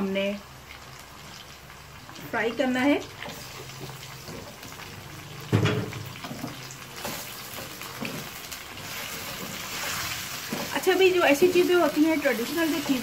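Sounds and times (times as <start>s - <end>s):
food sizzling in hot oil: 0.0s - 13.0s
knock: 5.5s - 5.9s
spatula stirring in wok: 6.1s - 13.0s.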